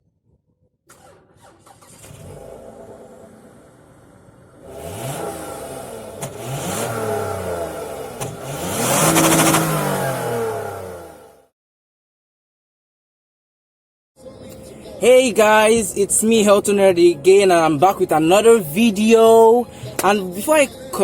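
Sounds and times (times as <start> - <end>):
car engine revving: 0.9 - 11.5.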